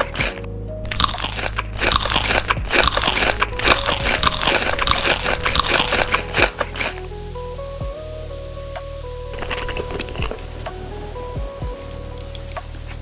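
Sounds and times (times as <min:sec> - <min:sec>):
crunchy food chewing: 0:00.0 - 0:07.1, 0:09.4 - 0:10.5.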